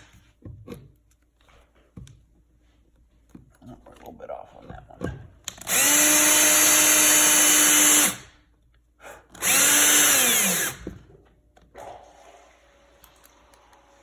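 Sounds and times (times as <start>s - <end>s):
power drill driving screws: 5.6s - 8.3s, 9.4s - 11.0s.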